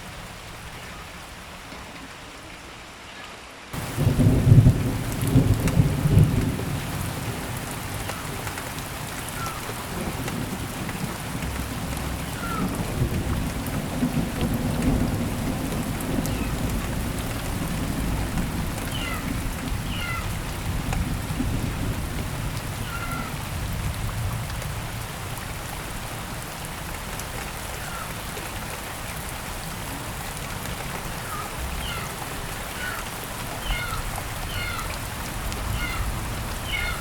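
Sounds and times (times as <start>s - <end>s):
heavy rain: 0.0s - 37.0s
thunder rumbling: 3.8s - 8.4s, 9.7s - 25.3s.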